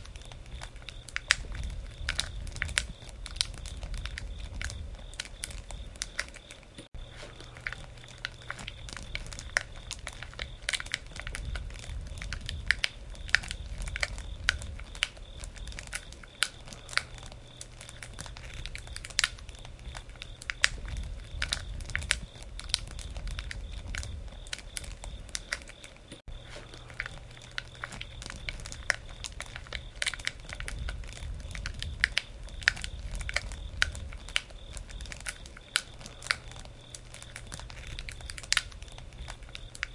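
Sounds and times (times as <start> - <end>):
campfire crackling: 0.0 - 39.9
low rumble of flame: 0.0 - 39.9.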